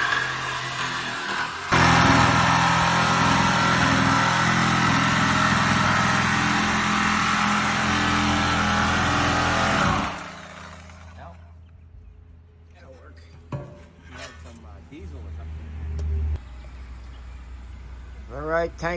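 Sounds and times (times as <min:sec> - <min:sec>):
cut-off saw cutting steel: 0:00.0 - 0:11.1.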